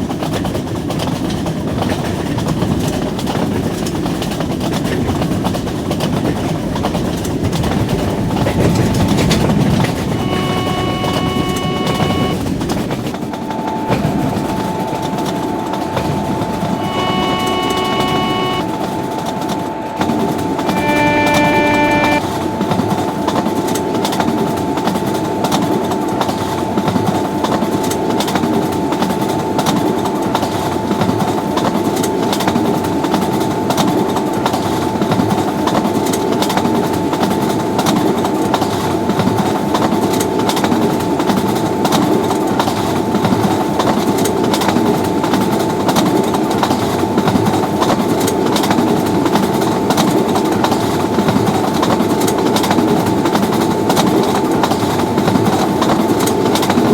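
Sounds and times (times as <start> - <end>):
thin steady whine: 8.3 - 22.8.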